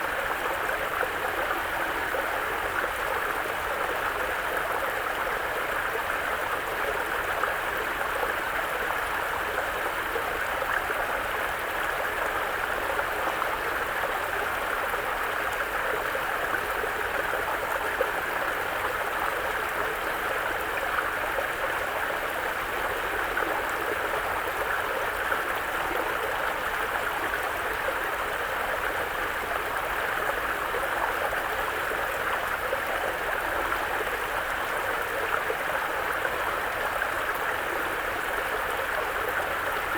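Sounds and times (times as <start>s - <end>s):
brook flowing over rocks: 0.1s - 39.9s.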